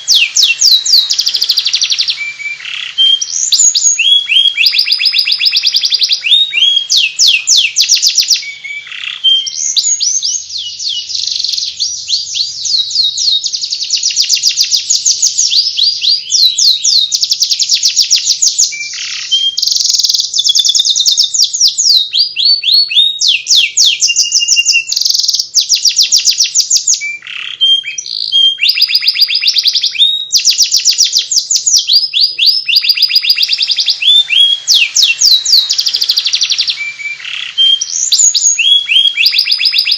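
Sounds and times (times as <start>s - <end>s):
canary singing rapid trills: 0.0s - 39.9s.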